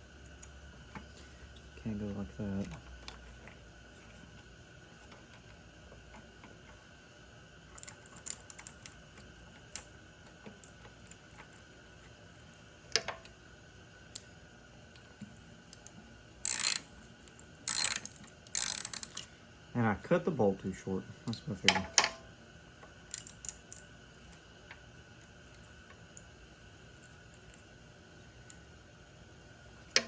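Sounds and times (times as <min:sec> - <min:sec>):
hardware clicks and taps: 0:12.9 - 0:13.4, 0:21.7 - 0:22.2.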